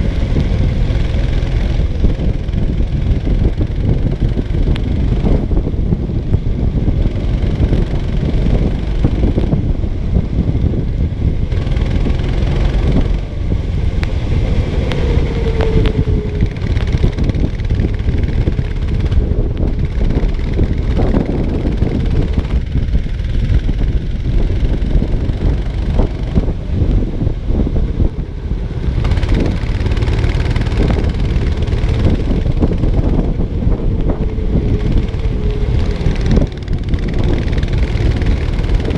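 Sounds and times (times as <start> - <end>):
kart engine under throttle: 0.0 - 38.9
wind buffeting microphone: 0.0 - 38.9
chassis knocking and rattling: 14.8 - 26.6, 28.8 - 38.9.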